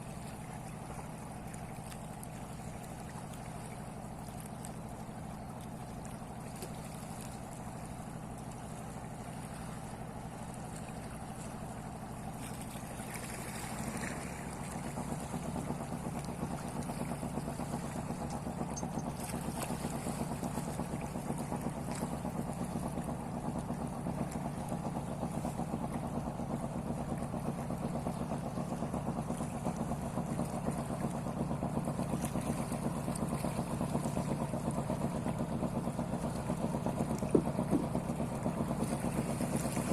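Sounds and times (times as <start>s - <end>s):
fishing boat engine running: 0.0s - 39.9s.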